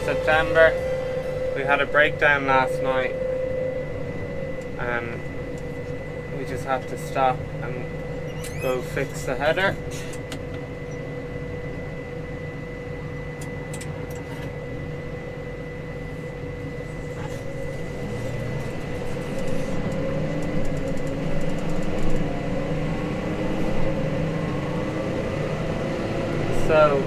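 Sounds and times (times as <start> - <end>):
tractor engine drone with whine: 0.0 - 27.0.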